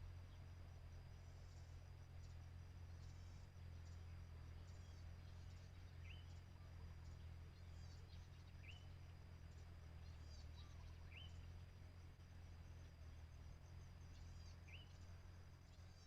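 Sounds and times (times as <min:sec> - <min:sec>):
high insect drone: 0:00.0 - 0:16.0
faint high bird chirps: 0:03.0 - 0:11.8, 0:14.0 - 0:16.0
sweeping bird chirp: 0:14.1 - 0:15.0.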